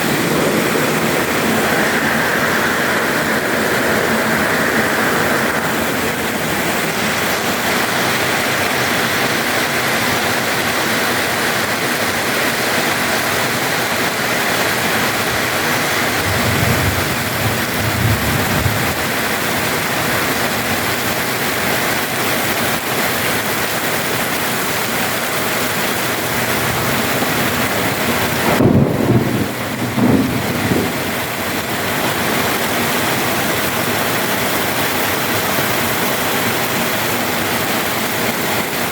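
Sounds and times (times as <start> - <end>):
low rumbles: 0.0 - 8.4
heavy rain pouring: 0.0 - 38.9.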